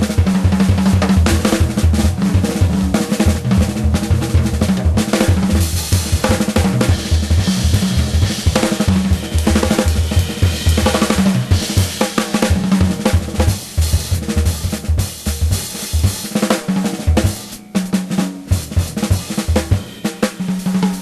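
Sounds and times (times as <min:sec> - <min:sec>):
bass line: 0:00.0 - 0:16.2
drum kit beat: 0:00.0 - 0:21.0.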